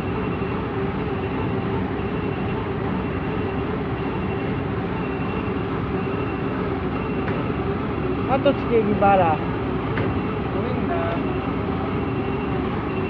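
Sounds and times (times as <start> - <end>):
heavy diesel machinery running: 0.0 - 13.0
faint high beeps: 10.2 - 13.0.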